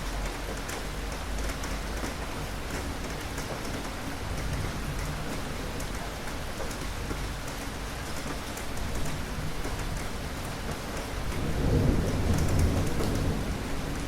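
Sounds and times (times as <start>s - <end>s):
steady rain falling: 0.0s - 14.0s
thunder rumbling: 11.1s - 14.0s.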